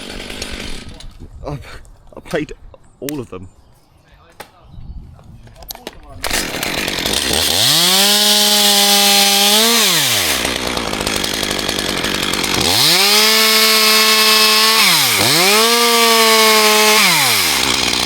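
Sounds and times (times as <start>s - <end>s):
chainsaw engine revving: 0.0s - 1.0s, 6.2s - 18.0s.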